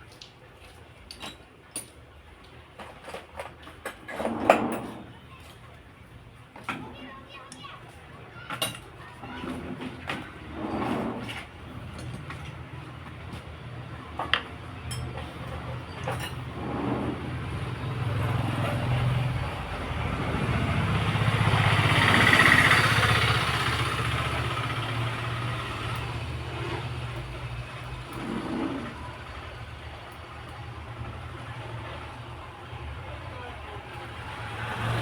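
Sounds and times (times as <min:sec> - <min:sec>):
motor vehicle passing: 0:16.4 - 0:30.1, 0:30.7 - 0:35.0.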